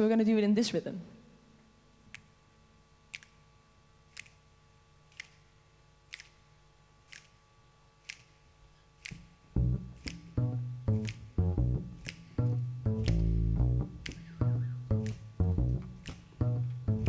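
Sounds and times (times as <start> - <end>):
sharp metronome clicks: 3.1 - 3.4, 4.1 - 4.4, 5.1 - 6.5, 7.1 - 7.4, 8.0 - 8.4, 9.0 - 17.0
plucked bass notes: 9.5 - 17.0.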